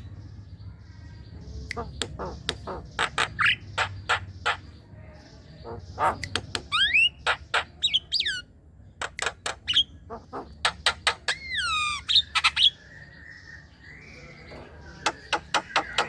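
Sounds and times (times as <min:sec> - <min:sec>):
myna clicking and chattering: 0:01.6 - 0:04.7, 0:05.6 - 0:08.3, 0:09.0 - 0:12.5, 0:14.5 - 0:16.0.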